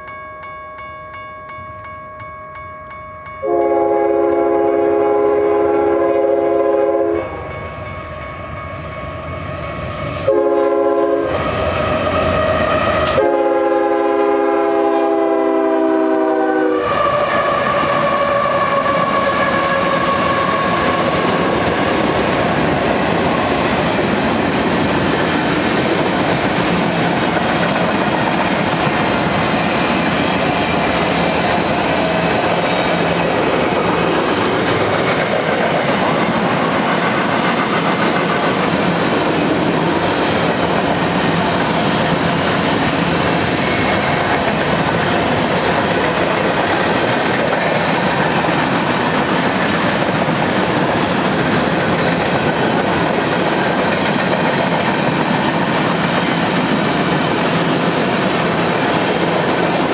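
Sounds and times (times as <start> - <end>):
crossing warning bells ringing: 0.0 - 11.1, 43.6 - 48.9
train rumbling and wheel clatter: 2.8 - 59.9
locomotive air horn blasts: 3.4 - 7.4, 10.3 - 11.4, 13.1 - 20.8.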